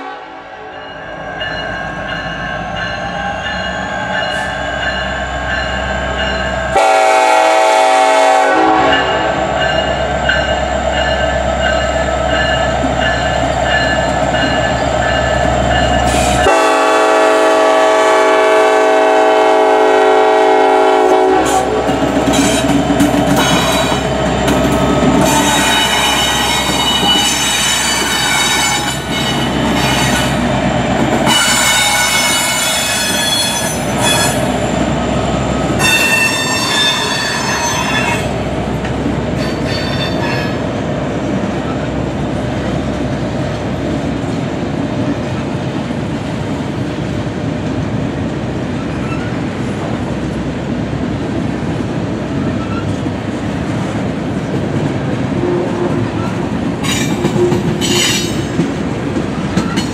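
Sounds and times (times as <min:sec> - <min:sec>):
diesel locomotive engine: 0:00.0 - 0:59.9
high ringing wheel squeal: 0:00.8 - 0:06.6, 0:25.2 - 0:30.3, 0:31.3 - 0:34.5, 0:35.8 - 0:38.3, 0:39.4 - 0:40.6
freight cars rolling rumble: 0:21.4 - 0:59.9.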